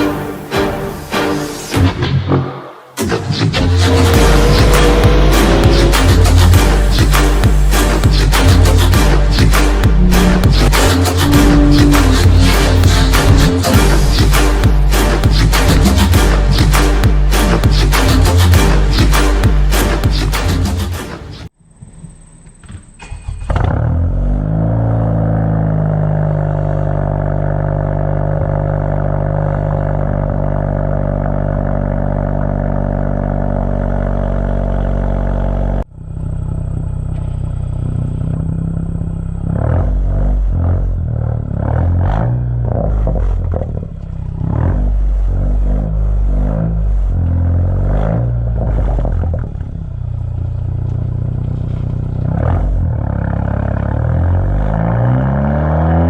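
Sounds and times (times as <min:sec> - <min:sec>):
car engine revving: 0:02.2 - 0:21.5, 0:23.0 - 0:56.0
car engine starting and idling: 0:02.4 - 0:56.0.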